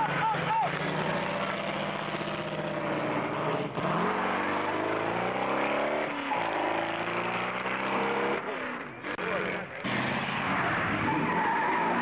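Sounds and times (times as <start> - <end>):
supercharged engine accelerating: 0.0 - 12.0.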